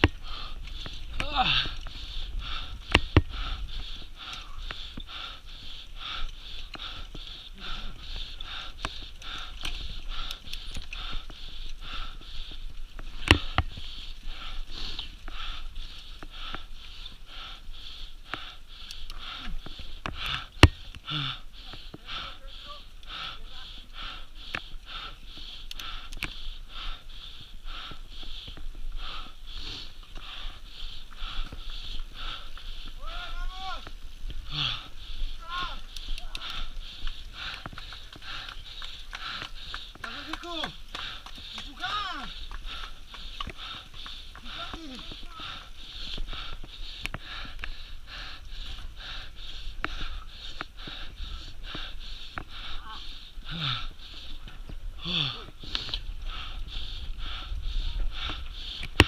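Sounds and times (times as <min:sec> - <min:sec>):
person breathing hard: 0:00.0 - 0:59.0.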